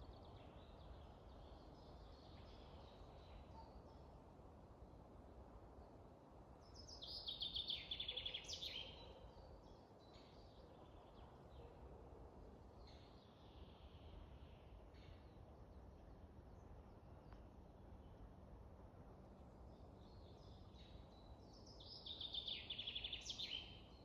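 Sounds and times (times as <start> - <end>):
songbirds singing: 0.0 - 4.3, 5.8 - 11.9, 19.3 - 24.0
low steady hiss: 0.0 - 24.0.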